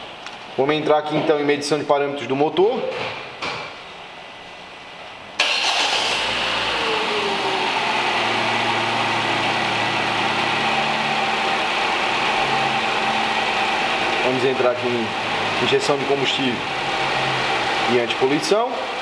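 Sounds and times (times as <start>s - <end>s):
car engine starting and idling: 5.4s - 19.0s.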